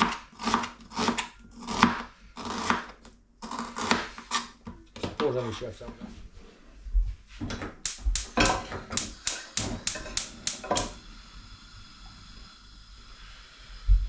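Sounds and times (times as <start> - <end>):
knife chopping on cutting board: 7.5 - 11.0.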